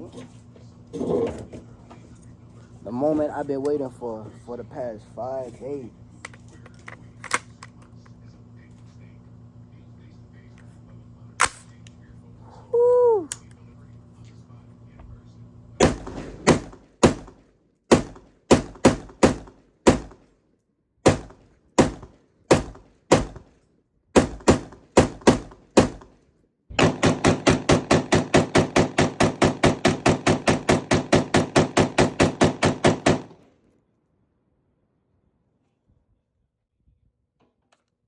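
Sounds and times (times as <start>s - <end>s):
pistol gunshots: 15.8s - 20.2s, 21.0s - 23.5s, 24.2s - 26.1s, 26.8s - 33.5s.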